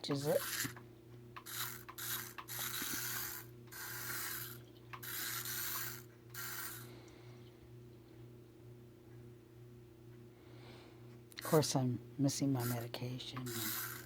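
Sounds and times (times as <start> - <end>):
steady low hum: 0.0 - 14.0
toy car gears whirring: 0.1 - 0.8, 1.4 - 6.9, 12.6 - 14.0.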